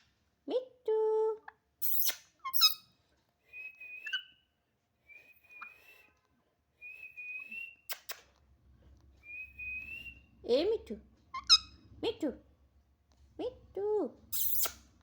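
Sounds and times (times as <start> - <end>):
parrot whistling: 3.5 - 4.4, 5.1 - 6.1, 9.2 - 10.3.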